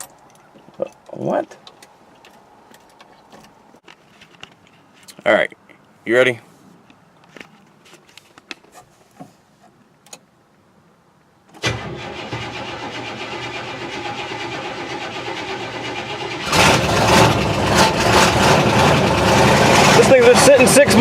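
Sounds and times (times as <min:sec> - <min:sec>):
car engine running: 0:15.8 - 0:21.0.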